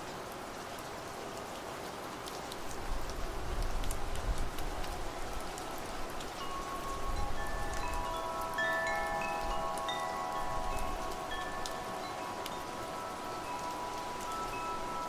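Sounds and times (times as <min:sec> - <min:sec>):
steady rain: 0:00.0 - 0:15.0
wind chimes ringing: 0:05.6 - 0:15.0.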